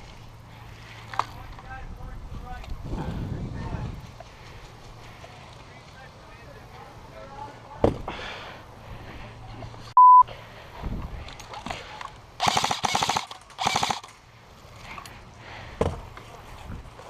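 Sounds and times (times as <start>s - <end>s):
censor beep: 10.0s - 10.3s
rapid airsoft gunfire: 12.4s - 14.1s.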